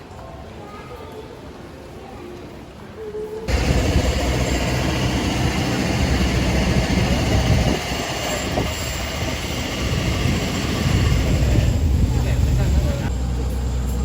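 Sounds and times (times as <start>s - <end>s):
train rumbling on rails: 3.5s - 14.0s.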